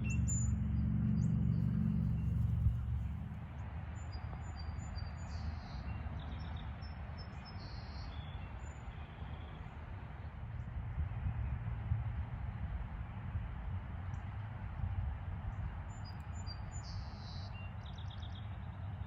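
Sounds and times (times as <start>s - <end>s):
wind rumble: 0.0s - 4.0s, 10.3s - 17.9s.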